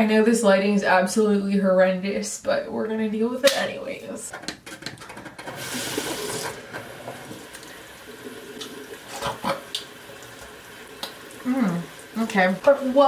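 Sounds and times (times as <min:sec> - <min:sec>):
tap water running into sink: 0:05.2 - 0:13.0.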